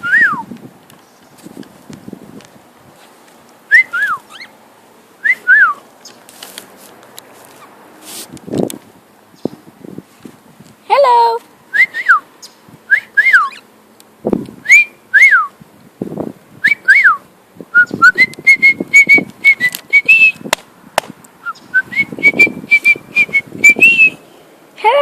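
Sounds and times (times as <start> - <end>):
soft low scuffling: 0.0 - 4.4, 5.3 - 11.6
cockatiel whistling: 3.7 - 4.5, 5.2 - 5.8, 12.9 - 13.6, 14.7 - 15.5, 17.8 - 20.4, 21.4 - 24.2.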